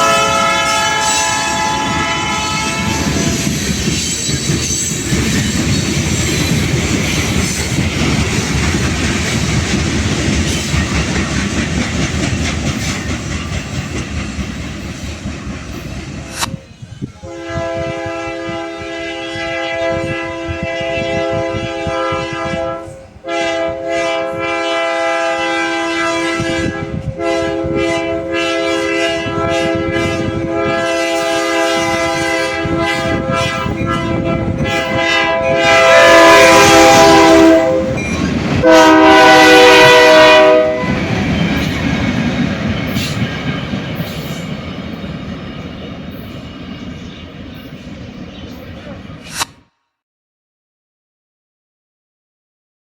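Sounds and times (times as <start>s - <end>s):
locomotive air horn blasts: 0.0s - 3.4s, 17.2s - 38.0s, 38.6s - 41.0s
train rumbling and clacking on rails: 0.0s - 49.3s.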